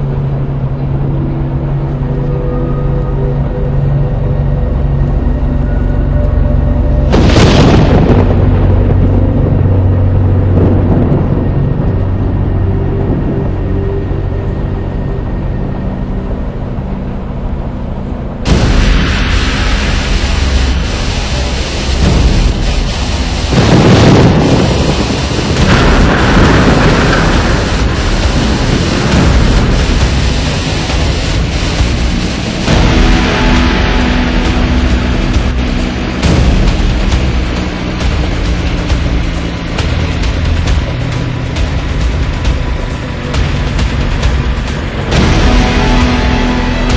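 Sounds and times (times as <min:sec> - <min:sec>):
steady low drone: 0:00.0 - 0:46.9
thunderclap crack and rumble: 0:04.3 - 0:15.5, 0:17.4 - 0:46.9.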